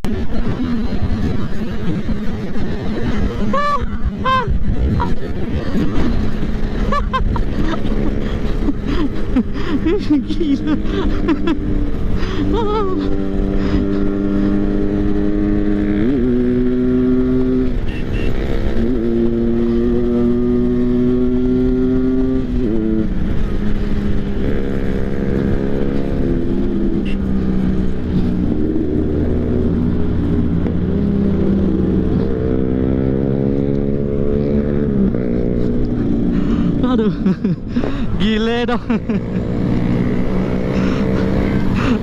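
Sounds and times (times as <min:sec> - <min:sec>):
rush of noise: 0:00.0 - 0:18.0, 0:18.6 - 0:42.0
motorcycle engine running hard: 0:00.0 - 0:42.0.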